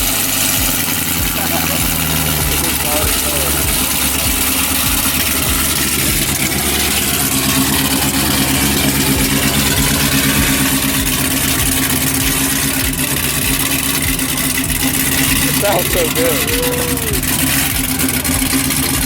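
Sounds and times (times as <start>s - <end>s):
loud deep car engine idling: 0.0s - 19.0s.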